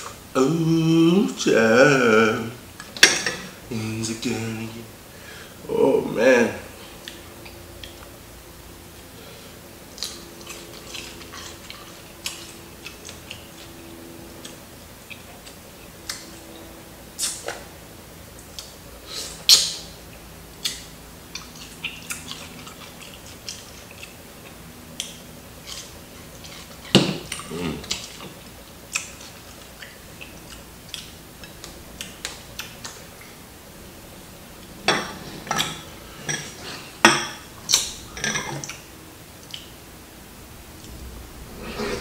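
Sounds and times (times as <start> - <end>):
chewing crispy fried chicken: 9.8 - 17.6, 18.4 - 33.4
wet mouth clicks and smacks: 28.9 - 33.3.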